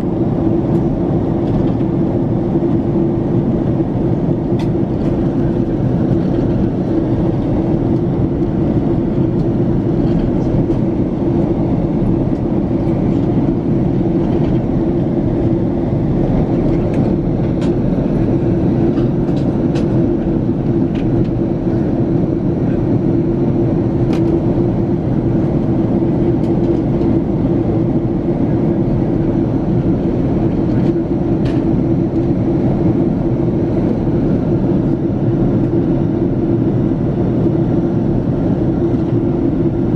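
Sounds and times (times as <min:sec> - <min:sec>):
aircraft cabin drone: 0:00.0 - 0:39.9.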